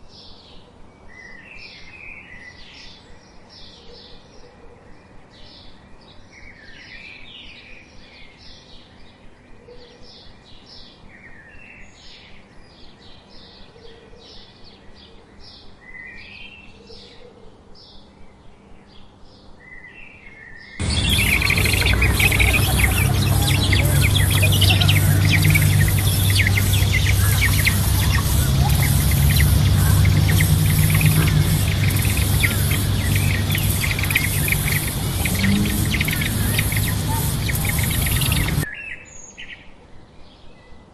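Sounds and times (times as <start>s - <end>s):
small birds chirping: 20.5s - 38.7s
shrill insect chorus: 20.8s - 38.6s
steady low hum: 20.8s - 38.7s.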